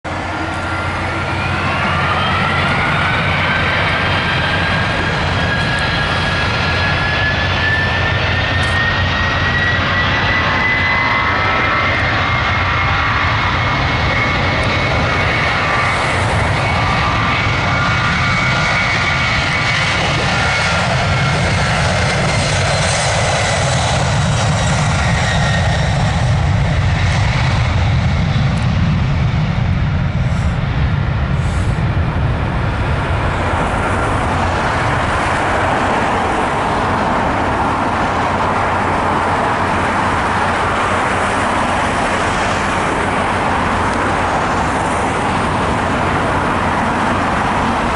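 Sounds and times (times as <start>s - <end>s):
jet engine roar: 0.0s - 47.9s.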